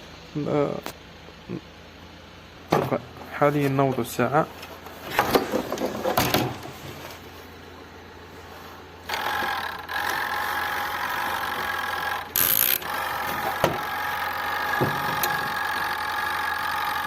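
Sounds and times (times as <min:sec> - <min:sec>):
washing machine motor hum: 0:08.3 - 0:17.0.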